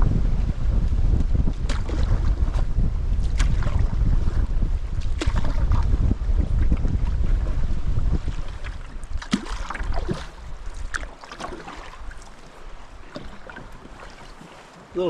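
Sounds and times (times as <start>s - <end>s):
wind buffeting microphone: 0.0s - 15.0s
paddle splashes: 1.5s - 15.0s
paddle knocking on hull: 8.7s - 15.0s.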